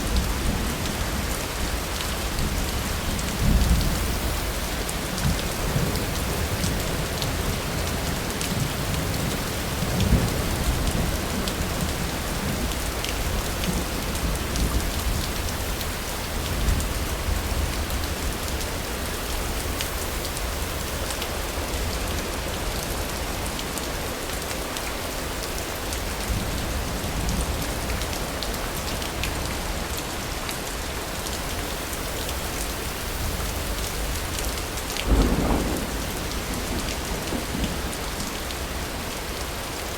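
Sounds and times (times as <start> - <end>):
heavy rain falling: 0.0 - 39.9
distant thunder rumbling: 35.0 - 38.3.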